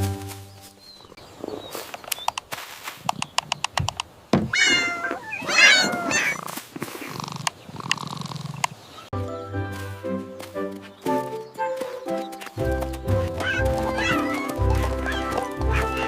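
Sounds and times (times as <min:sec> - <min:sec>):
music: 0:00.0 - 0:00.6, 0:09.2 - 0:16.0
sharp clicks: 0:01.9 - 0:04.2, 0:07.4 - 0:08.8
cat meowing: 0:04.5 - 0:06.4, 0:13.4 - 0:16.0.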